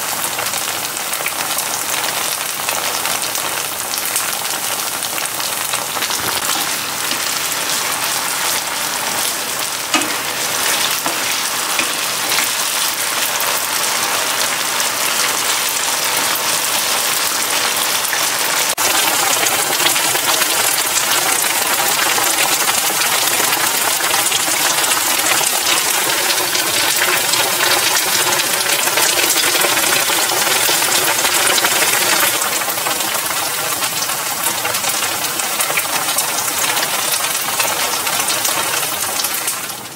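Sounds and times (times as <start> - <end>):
mushrooms sizzling in hot oil: 0.0 - 39.9.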